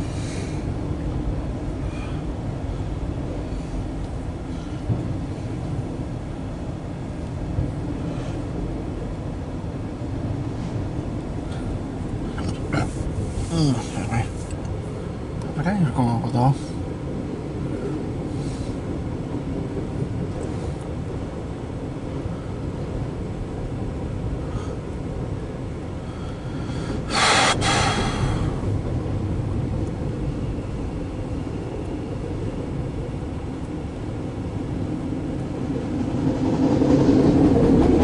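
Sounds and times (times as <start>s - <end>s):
freight train rumbling past: 0.0s - 38.0s
loud burst of noise: 27.1s - 28.5s.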